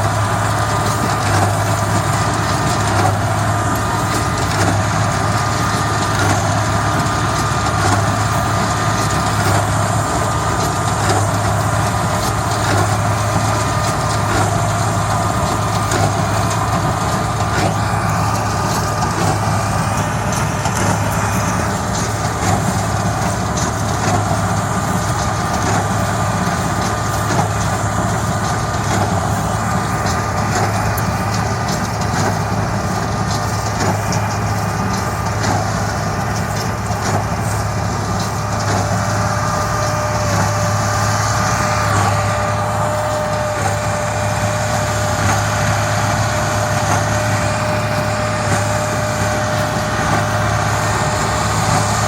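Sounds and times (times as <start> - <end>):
tractor engine under load: 0.0 - 52.0.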